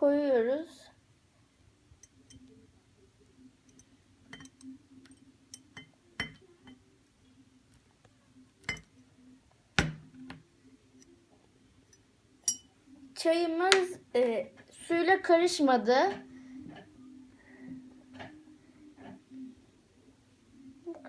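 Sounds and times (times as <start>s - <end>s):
faint steady hum: 0.0s - 21.0s
glassware clinking: 3.7s - 6.8s, 8.6s - 8.9s, 11.9s - 12.7s.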